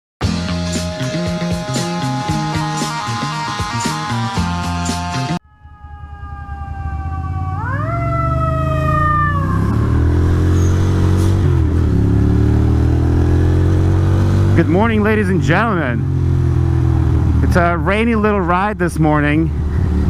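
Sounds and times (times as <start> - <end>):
engine noise: 0.2 - 20.0
fire engine siren wailing: 0.7 - 14.0.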